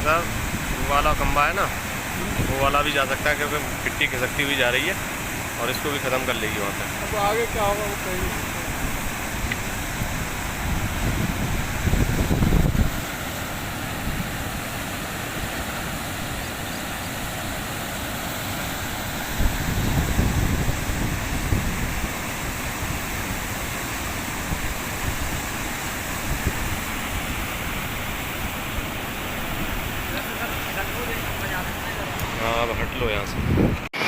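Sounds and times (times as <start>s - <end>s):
floodwater rushing: 0.0s - 33.2s
wind buffeting microphone: 7.5s - 14.8s, 18.8s - 33.9s.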